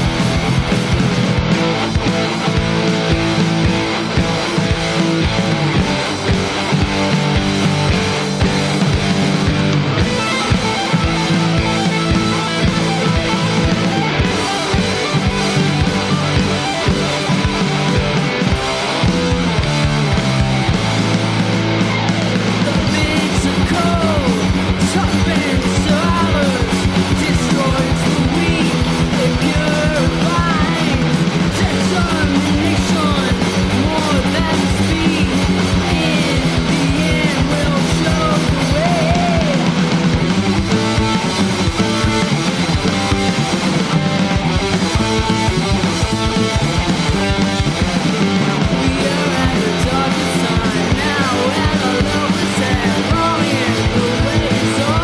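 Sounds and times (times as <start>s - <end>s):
rock song with distorted guitars: 0.0s - 55.0s
person singing: 22.5s - 39.8s, 45.4s - 55.0s.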